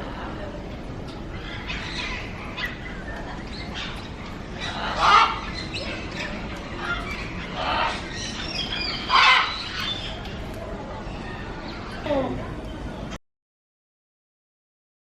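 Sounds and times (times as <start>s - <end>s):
parrot squawking: 4.6s - 6.0s, 6.8s - 10.0s.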